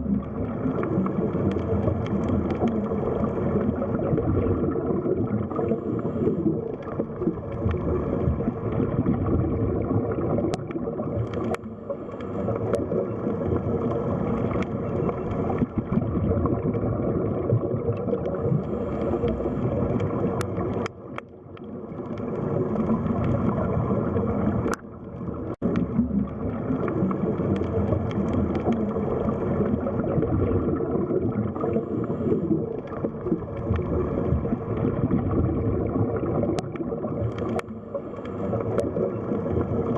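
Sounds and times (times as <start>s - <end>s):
underwater water noise: 0.0s - 39.9s
faint clicks: 0.1s - 4.0s, 5.5s - 9.0s, 10.1s - 16.0s, 17.9s - 30.1s, 36.4s - 39.9s.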